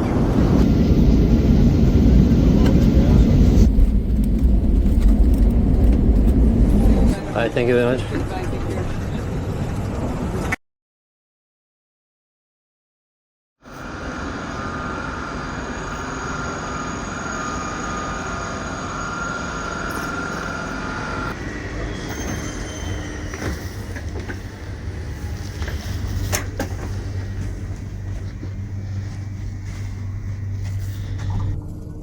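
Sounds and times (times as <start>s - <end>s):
train rolling rumble: 0.0s - 10.6s, 13.7s - 32.0s
train wheel squeal: 14.2s - 28.2s.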